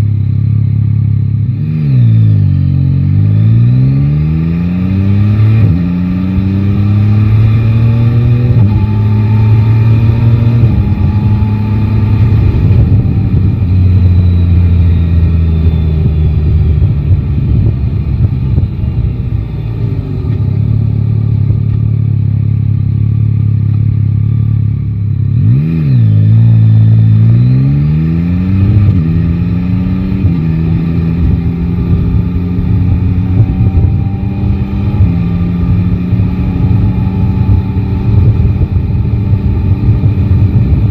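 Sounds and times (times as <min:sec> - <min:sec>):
motorcycle engine accelerating: 0:00.0 - 0:40.9
wind rush: 0:05.4 - 0:21.6, 0:28.2 - 0:40.9.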